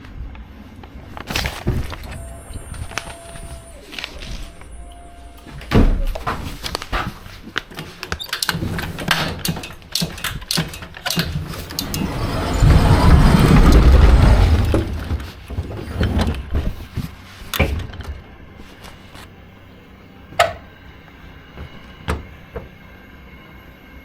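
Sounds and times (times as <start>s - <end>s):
heavy rolling rumble: 11.4s - 16.9s
pallet knocks and clanks: 21.6s - 22.7s.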